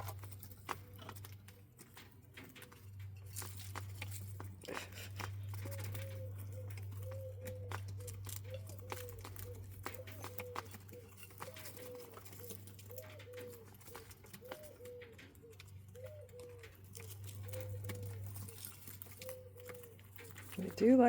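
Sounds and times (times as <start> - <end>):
birds clicking and scratching: 0.0 - 21.0.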